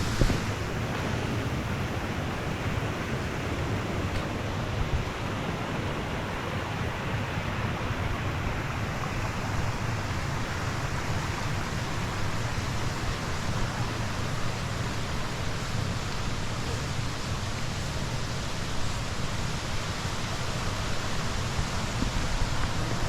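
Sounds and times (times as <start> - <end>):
water rushing over rocks: 0.0 - 23.0.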